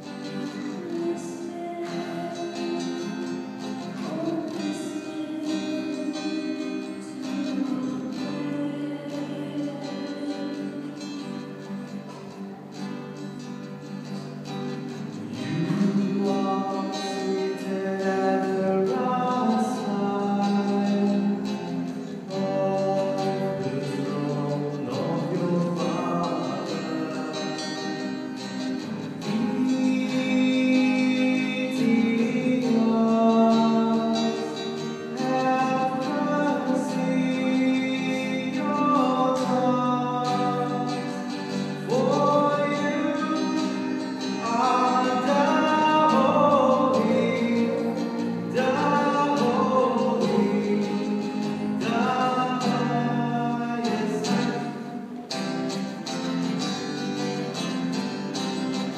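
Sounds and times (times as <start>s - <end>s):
guitar: 0.0s - 58.9s.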